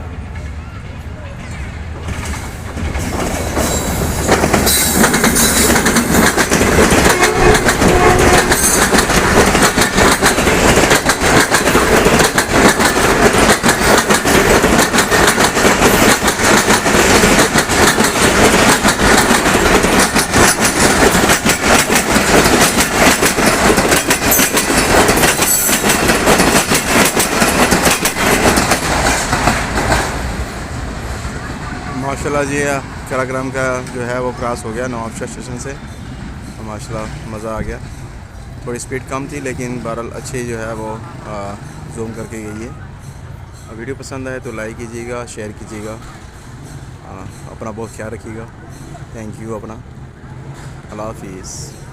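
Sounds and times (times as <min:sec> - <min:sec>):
train wheels clattering over rail joints: 0:02.0 - 0:30.4.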